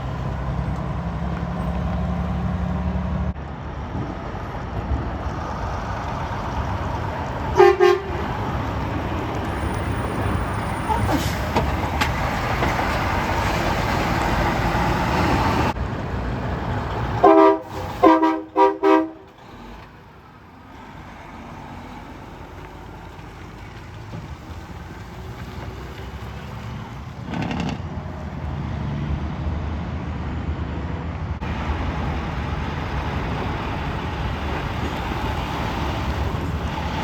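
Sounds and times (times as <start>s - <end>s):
roadside traffic noise: 0.0s - 37.0s
truck horn toots: 7.5s - 8.4s, 17.2s - 19.4s.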